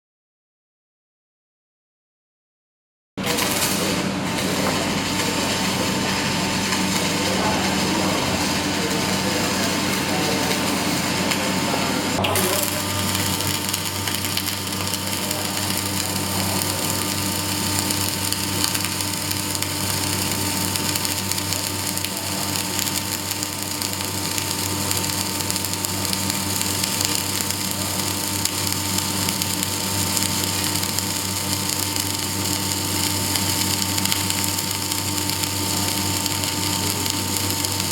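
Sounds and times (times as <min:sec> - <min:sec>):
welding arc crackling: 0:03.2 - 0:37.9
faint electrical hum: 0:12.2 - 0:37.9.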